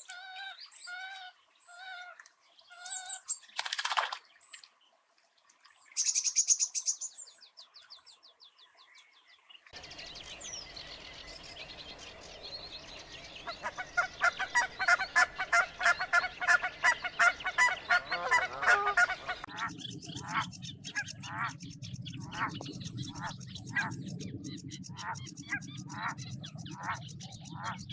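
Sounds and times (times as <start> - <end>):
birds chirping: 5.8 - 27.9
low hum: 19.0 - 27.9.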